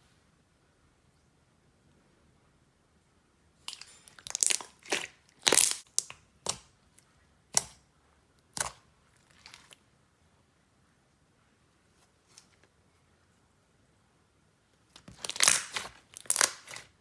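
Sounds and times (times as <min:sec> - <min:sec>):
slime squeezed crackling pops: 0:04.3 - 0:06.6, 0:15.2 - 0:16.9.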